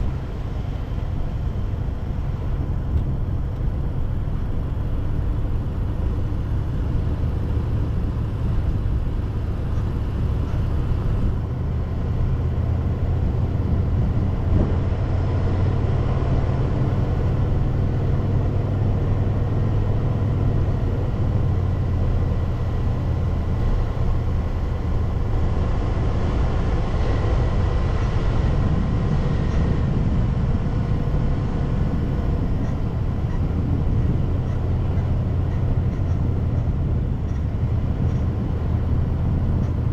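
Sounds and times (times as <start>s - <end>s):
car driving on road: 0.0s - 39.9s.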